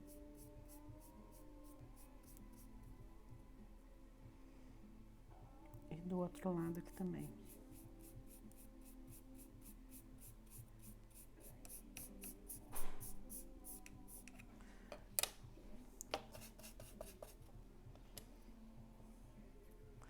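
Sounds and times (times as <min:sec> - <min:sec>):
paintbrush scrubbing: 0:06.9 - 0:14.4, 0:16.3 - 0:17.4.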